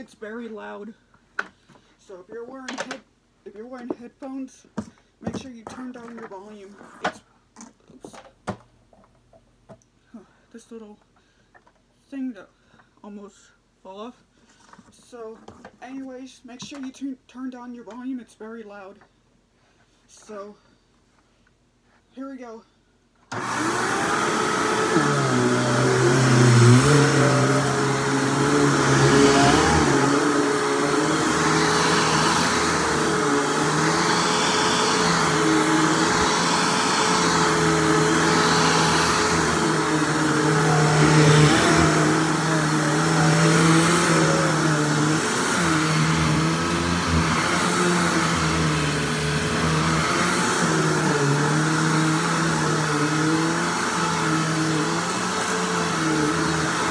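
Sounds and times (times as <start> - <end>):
vacuum cleaner running: 23.3 - 56.9.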